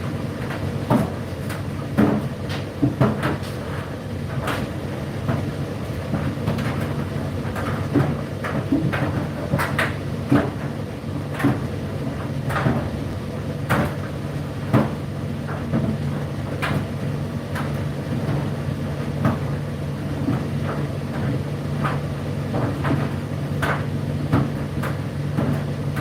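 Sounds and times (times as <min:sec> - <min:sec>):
tumble dryer motor hum: 0:00.0 - 0:26.0
laundry knocking in drum: 0:00.4 - 0:03.6, 0:04.4 - 0:13.0, 0:13.6 - 0:18.6, 0:20.2 - 0:26.0.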